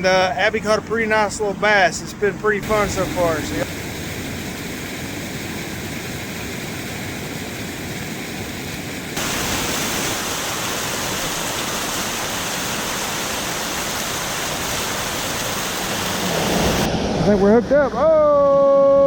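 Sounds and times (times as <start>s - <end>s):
fast river water rushing: 2.2s - 4.3s, 9.2s - 17.0s.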